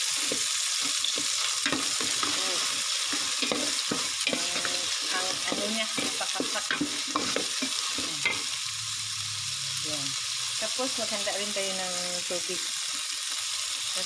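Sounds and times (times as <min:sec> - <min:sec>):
wooden spatula scraping a pot: 0:00.0 - 0:08.5
onions frying in oil: 0:00.0 - 0:14.0.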